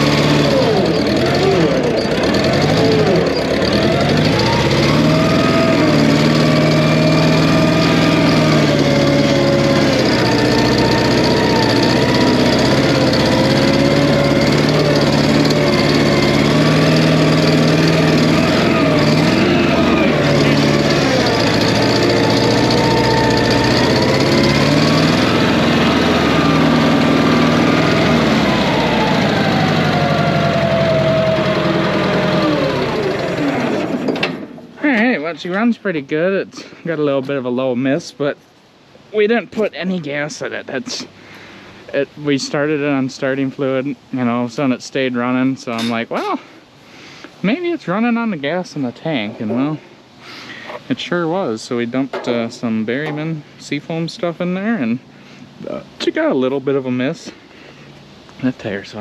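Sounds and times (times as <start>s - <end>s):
air-cooled engine running: 0.0s - 36.0s.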